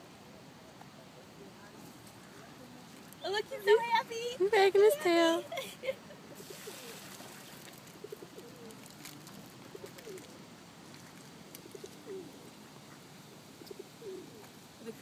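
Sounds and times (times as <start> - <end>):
pigeons cooing: 6.2 - 15.0.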